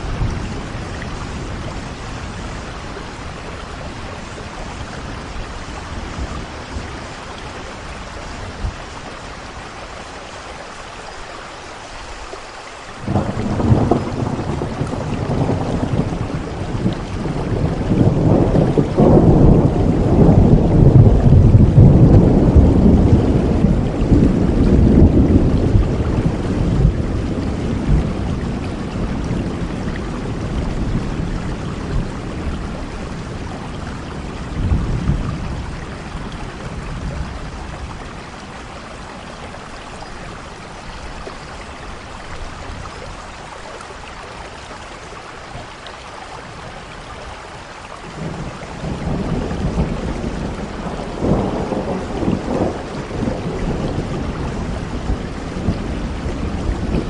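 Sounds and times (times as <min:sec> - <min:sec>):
heavy rain falling: 0:00.0 - 0:57.0
thunder rumbling: 0:13.0 - 0:43.0, 0:48.1 - 0:57.0.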